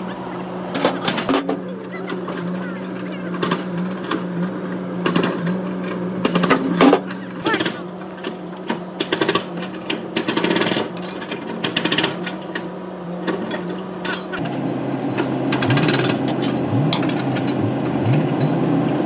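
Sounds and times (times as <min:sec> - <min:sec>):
pneumatic hammer rattling: 0:00.8 - 0:12.7, 0:15.5 - 0:19.0
machine hum: 0:14.4 - 0:19.0.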